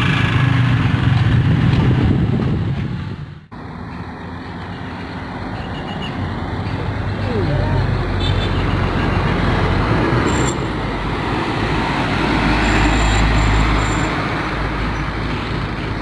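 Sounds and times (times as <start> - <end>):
highway traffic rumble: 0.0 - 16.0.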